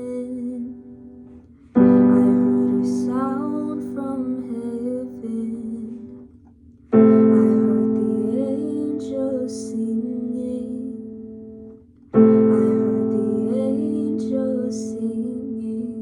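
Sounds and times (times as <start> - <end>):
person singing: 0.0 - 1.2, 1.8 - 6.2, 7.0 - 11.4, 12.2 - 16.0
piano chords: 0.0 - 16.0.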